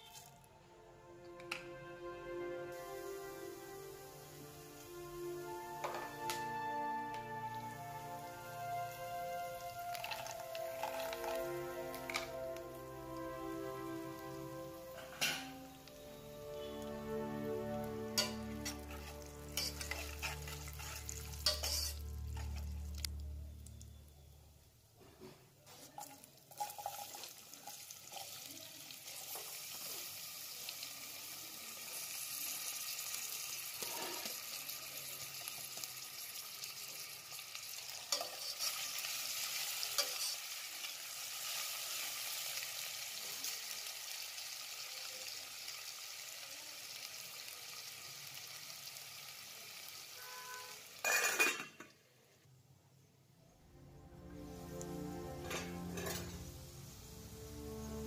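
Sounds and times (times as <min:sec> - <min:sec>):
potatoes sizzling in oil: 0:02.8 - 0:24.3, 0:25.8 - 0:51.1, 0:54.5 - 0:58.0
steel lid clattering on pan: 0:51.0 - 0:51.8.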